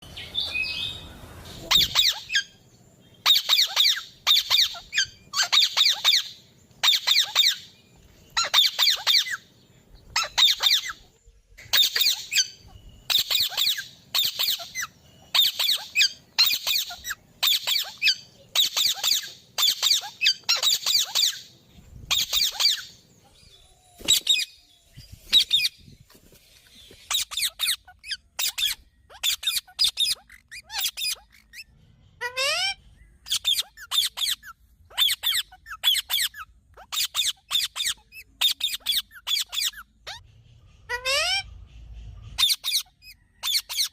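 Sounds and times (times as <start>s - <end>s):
bird harsh chattering call: 1.6s - 23.1s.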